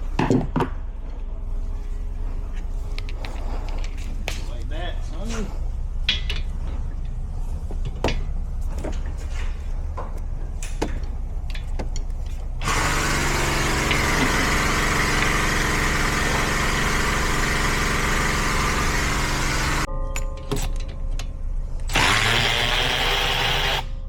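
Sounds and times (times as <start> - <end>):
car engine running: 12.6 - 19.9.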